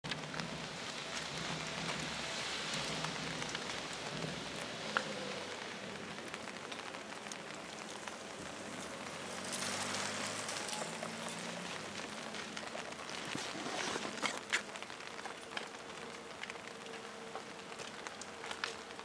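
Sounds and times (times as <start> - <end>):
raindrops ticking close by: 0.0 - 19.0
steady rain falling: 0.0 - 19.0.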